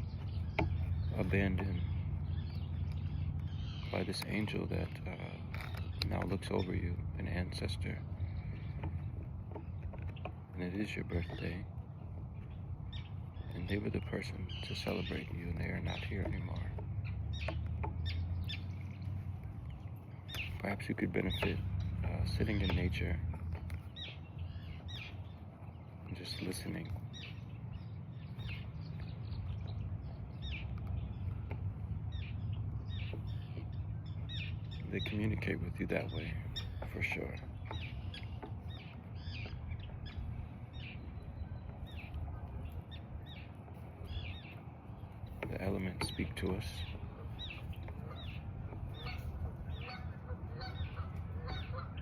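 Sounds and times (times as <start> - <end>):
small birds chirping: 0.0 - 52.0
steady low rumble: 0.0 - 52.0
flock of birds honking: 46.0 - 52.0.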